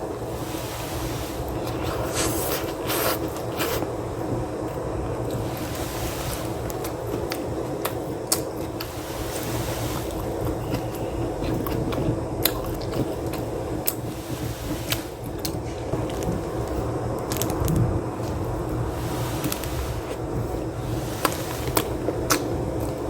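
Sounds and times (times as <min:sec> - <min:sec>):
low background rumble: 0:00.0 - 0:23.0
chewing and biting pizza: 0:10.4 - 0:14.1.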